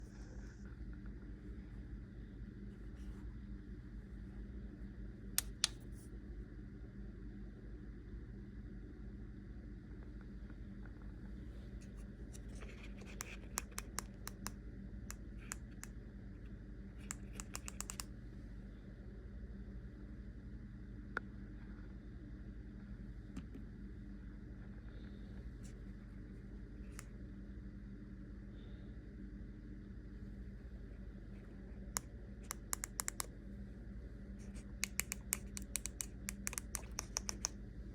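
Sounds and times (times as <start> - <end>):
low steady hum: 0.0 - 37.9
display buttons clicking: 32.5 - 33.3, 34.8 - 37.5.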